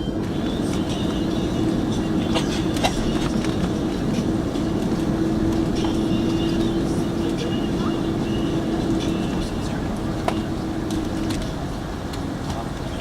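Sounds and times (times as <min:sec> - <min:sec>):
aircraft cabin rumble and hum: 0:00.0 - 0:13.0.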